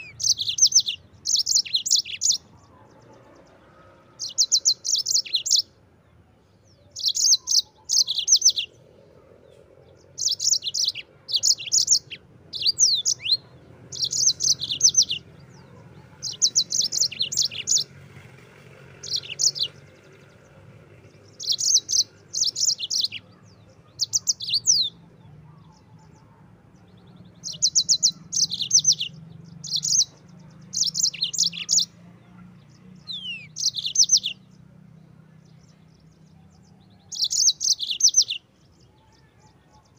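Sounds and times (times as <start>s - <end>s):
canary singing high trills: 0.0s - 3.0s, 3.8s - 5.7s, 6.8s - 8.8s, 9.9s - 17.9s, 18.9s - 20.3s, 21.2s - 26.4s, 27.3s - 32.4s, 33.0s - 34.5s, 37.0s - 39.2s.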